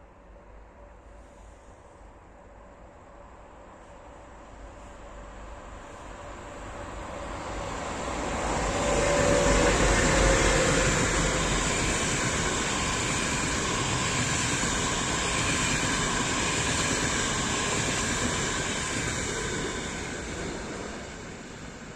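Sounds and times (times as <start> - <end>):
diesel train passing: 0.1 - 21.9.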